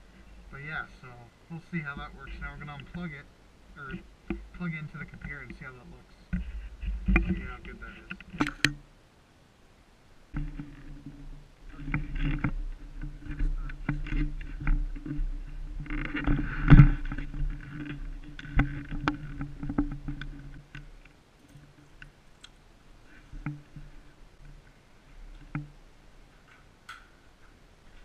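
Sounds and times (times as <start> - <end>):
camera housing rubbing and scraping: 6.4 - 8.7, 10.4 - 20.9.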